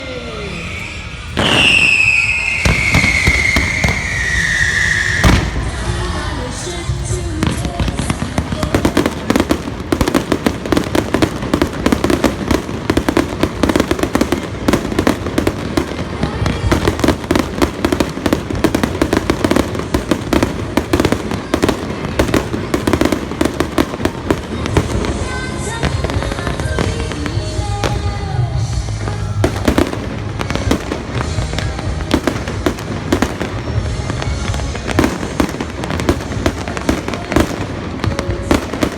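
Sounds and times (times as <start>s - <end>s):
firework falling whistle: 0.0s - 6.0s
fireworks crackling and banging: 0.0s - 38.9s
music playing: 0.0s - 38.9s.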